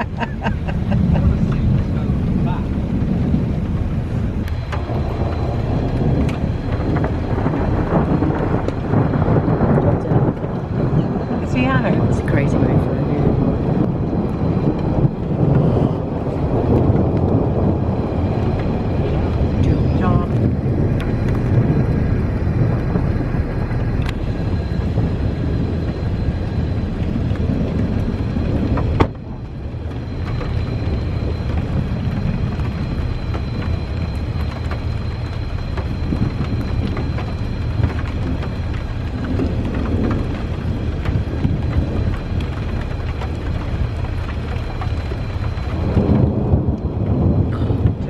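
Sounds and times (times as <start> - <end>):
steady rain: 0.0 - 48.0
thunder rumbling: 0.0 - 48.0.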